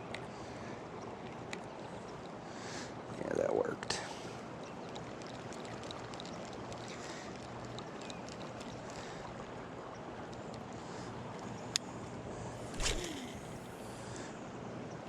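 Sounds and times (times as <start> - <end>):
faint small ticks: 4.6 - 14.3.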